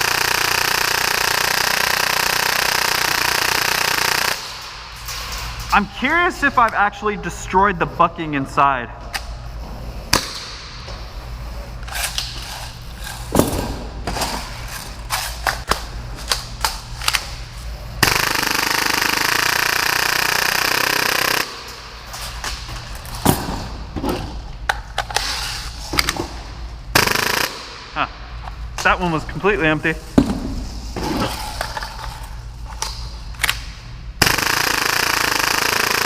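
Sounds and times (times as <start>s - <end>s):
airsoft pistol full-auto burst: 0.0s - 4.6s, 18.0s - 21.7s, 27.0s - 27.6s, 34.2s - 36.0s.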